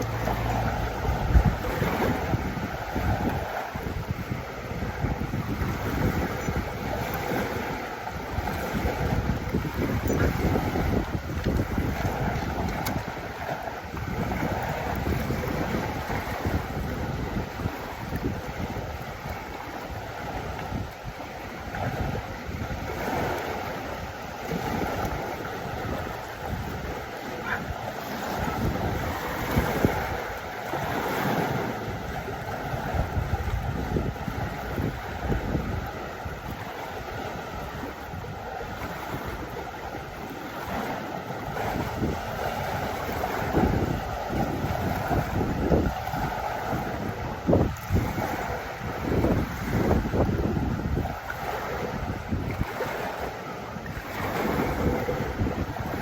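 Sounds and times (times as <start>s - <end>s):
lake water lapping: 0.0s - 56.0s
wind buffeting microphone: 0.0s - 56.0s.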